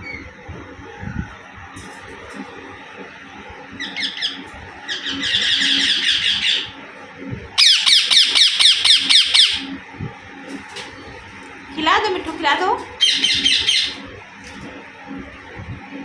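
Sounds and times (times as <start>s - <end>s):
parakeet chattering calls: 3.8s - 6.7s, 7.6s - 9.8s, 13.0s - 14.0s.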